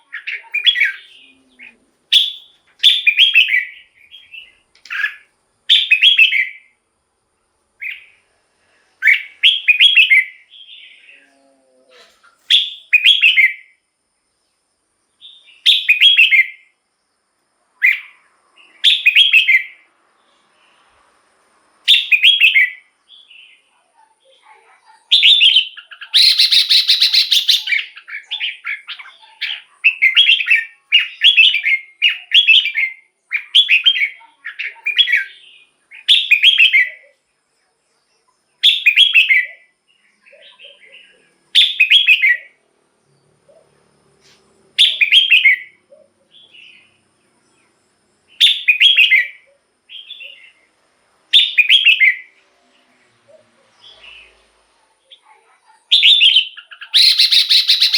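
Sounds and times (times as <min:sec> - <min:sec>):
bird singing short phrases: 0:00.0 - 0:06.7, 0:09.0 - 0:13.8, 0:17.8 - 0:20.5, 0:21.9 - 0:37.2, 0:38.2 - 0:42.6, 0:44.8 - 0:47.7, 0:48.3 - 0:50.7, 0:51.3 - 0:54.5, 0:55.9 - 0:57.9.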